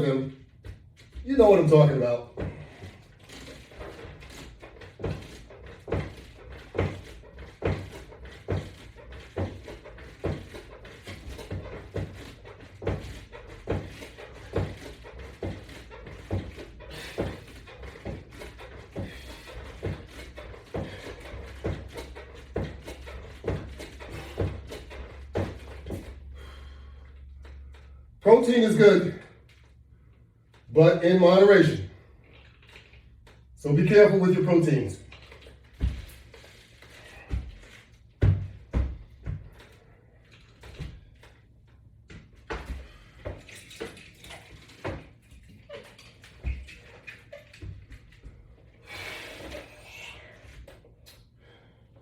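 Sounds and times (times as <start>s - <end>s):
exercise bar knocking: 0.5s - 26.4s, 35.0s - 41.4s, 42.1s - 48.6s
dull thuds: 2.2s - 26.6s, 35.6s - 40.0s.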